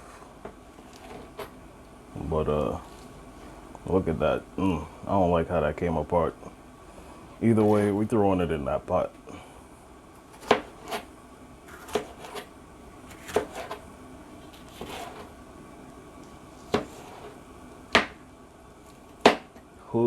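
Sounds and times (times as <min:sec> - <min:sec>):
knife chopping vegetables: 0:00.8 - 0:01.5, 0:10.3 - 0:11.1, 0:11.7 - 0:12.5, 0:13.1 - 0:13.8, 0:14.5 - 0:15.3, 0:16.6 - 0:18.2, 0:19.2 - 0:19.6.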